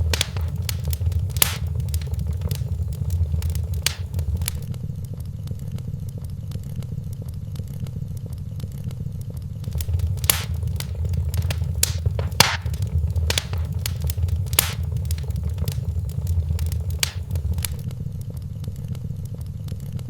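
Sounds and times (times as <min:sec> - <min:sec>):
low rumble of fire: 0:00.0 - 0:04.7, 0:09.6 - 0:17.8
wood fire crackling: 0:00.0 - 0:04.7, 0:09.6 - 0:17.8.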